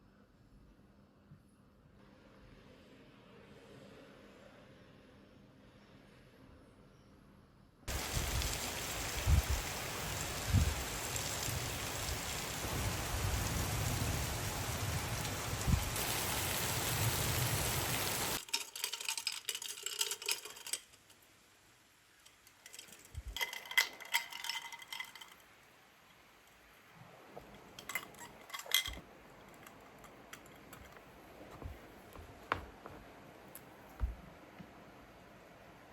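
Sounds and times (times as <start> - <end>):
light clinks and taps: 22.2 - 25.5, 27.4 - 33.0
dull thumps: 33.9 - 34.7.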